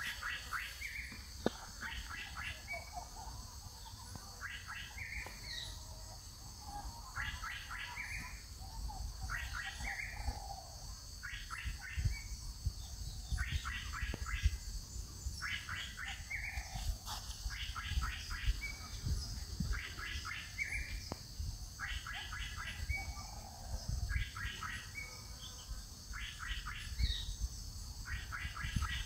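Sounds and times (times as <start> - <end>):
songbird singing: 0.0 - 29.0.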